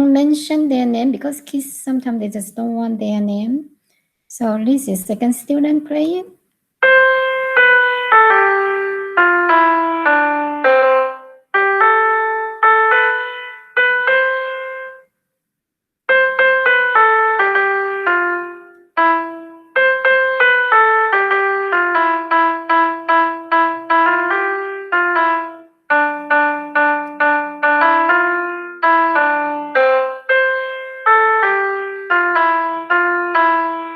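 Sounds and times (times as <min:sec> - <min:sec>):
piano-like synth melody: 0:06.8 - 0:15.2, 0:16.1 - 0:33.9.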